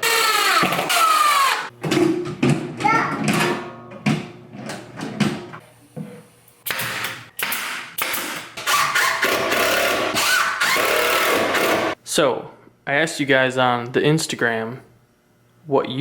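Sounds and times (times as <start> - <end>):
hand-held power tool running: 0.0 - 1.7, 8.6 - 12.0.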